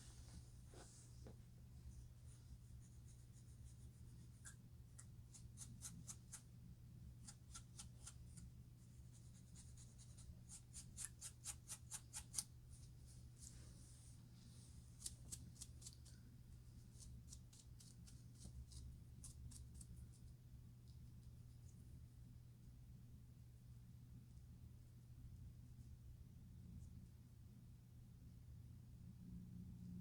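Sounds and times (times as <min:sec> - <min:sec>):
soft rubbing: 0:00.0 - 0:06.5, 0:07.2 - 0:18.8.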